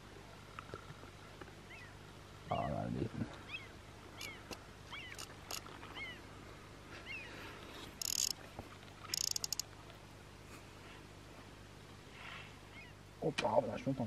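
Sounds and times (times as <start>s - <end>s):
bird chirping: 1.7s - 2.8s, 3.5s - 6.2s.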